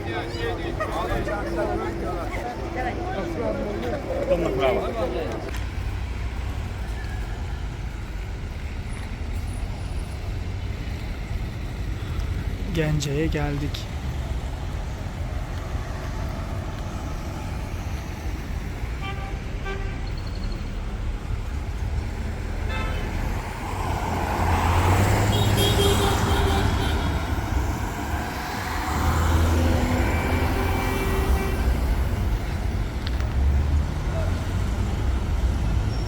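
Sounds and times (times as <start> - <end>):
vehicles passing: 0.0 - 36.0
car horn toots: 25.3 - 27.2.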